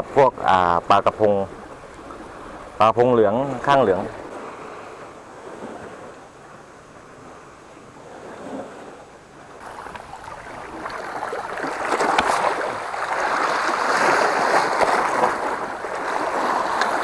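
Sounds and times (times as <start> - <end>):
sea water washing against rocks: 8.0 - 17.0.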